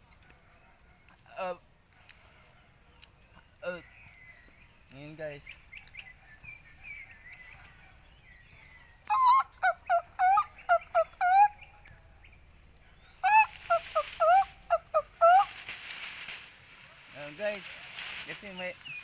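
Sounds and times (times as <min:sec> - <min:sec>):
quick fowl-like bird calls: 0:13.1 - 0:18.7.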